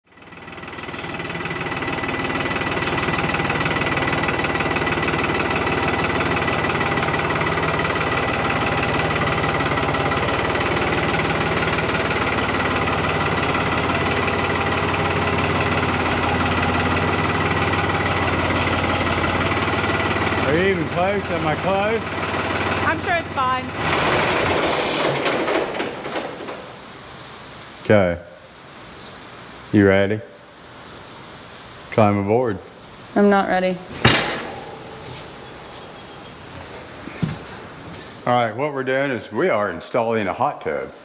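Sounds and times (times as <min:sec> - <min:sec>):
thin steady whine: 0:00.1 - 0:23.8, 0:26.5 - 0:41.0
tractor engine idling: 0:00.1 - 0:26.8, 0:34.0 - 0:38.7.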